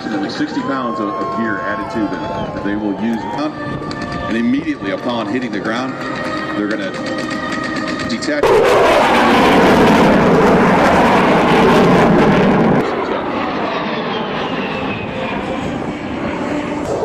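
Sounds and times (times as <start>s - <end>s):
aircraft engine whine: 0.0s - 17.0s
aircraft flying past: 0.0s - 17.0s.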